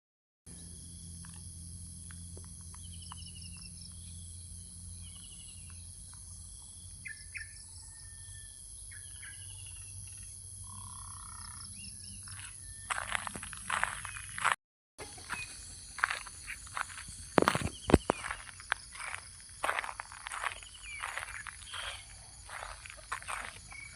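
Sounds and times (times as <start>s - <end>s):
high insect hum: 0.5s - 23.9s
birds chirping and trilling: 2.7s - 23.9s.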